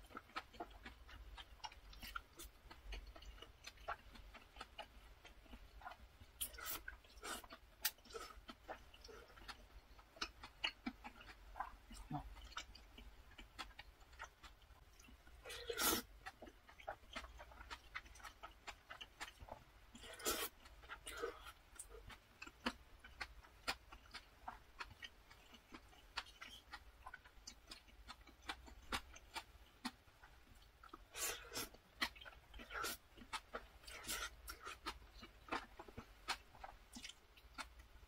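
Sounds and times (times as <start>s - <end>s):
chewing noodles: 0.0s - 38.0s.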